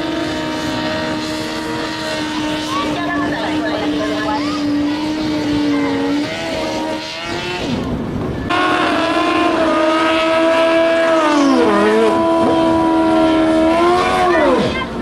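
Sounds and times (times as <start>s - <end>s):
motorcycle engines at high revs: 0.0s - 15.0s.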